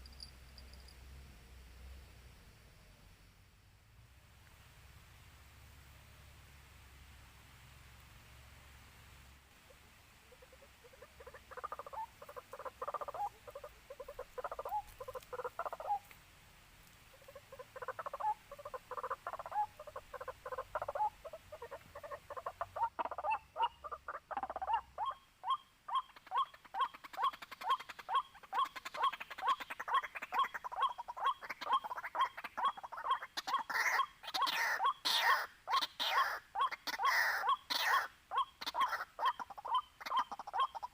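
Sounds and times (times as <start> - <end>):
waterhen calling: 9.6 - 16.2, 16.8 - 40.9.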